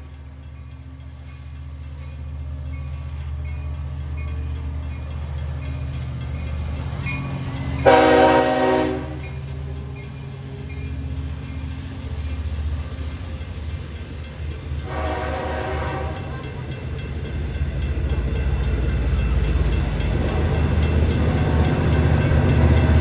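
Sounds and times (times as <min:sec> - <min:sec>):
diesel train rumbling: 0:00.0 - 0:23.0
train horn blast: 0:07.8 - 0:09.3, 0:14.8 - 0:16.4.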